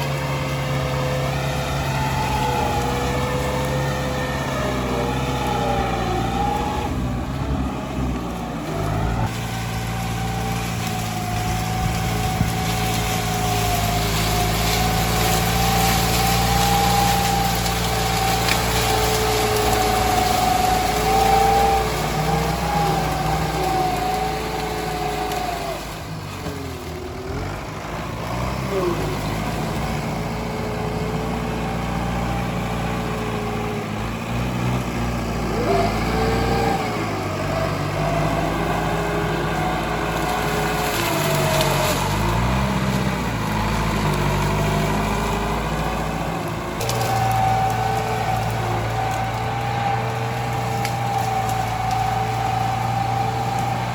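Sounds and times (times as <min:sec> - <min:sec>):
tractor engine running: 0:00.0 - 0:53.9.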